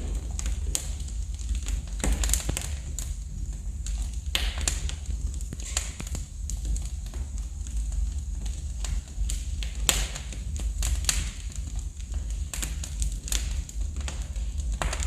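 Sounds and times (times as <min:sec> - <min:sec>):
low rumble: 0:00.0 - 0:09.4
wood fire crackling: 0:00.0 - 0:15.0.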